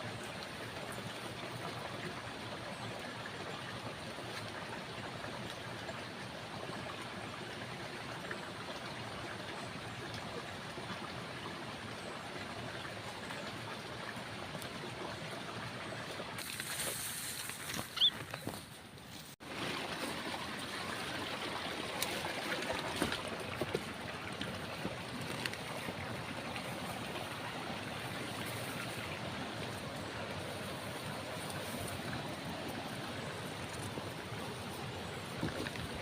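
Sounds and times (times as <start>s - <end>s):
flowing water rushing: 19.4s - 36.0s.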